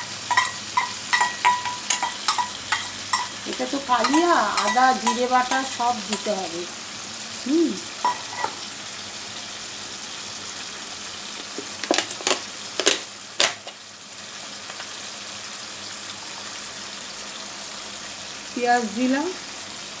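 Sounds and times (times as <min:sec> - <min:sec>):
sharp clinks against a pan: 0:00.0 - 0:06.4, 0:08.0 - 0:08.6
food sizzling in a pan: 0:00.0 - 0:20.0.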